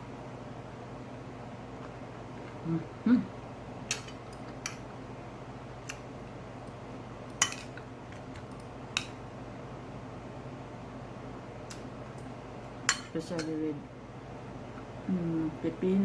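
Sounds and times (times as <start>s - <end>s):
faint steady hum: 0.0s - 16.0s
cutlery clinking on a plate: 7.4s - 7.8s.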